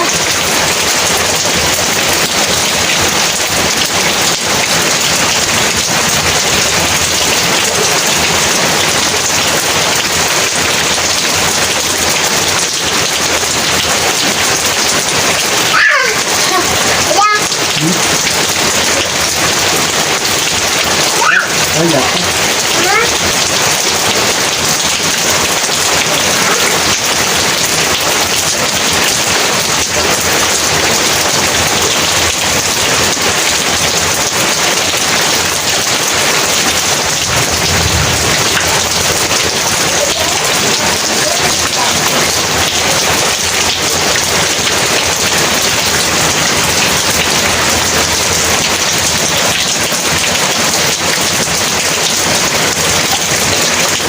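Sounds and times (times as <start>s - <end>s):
heavy rain pouring: 0.0s - 54.0s
thunder rumble: 36.8s - 40.0s.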